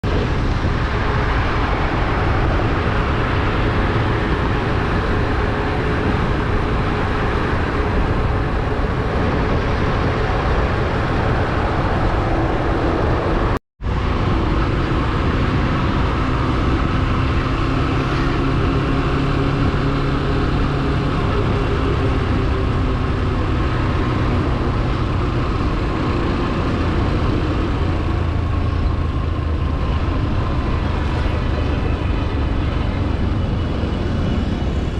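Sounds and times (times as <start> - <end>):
wind rush on microphone: 0.0 - 34.9.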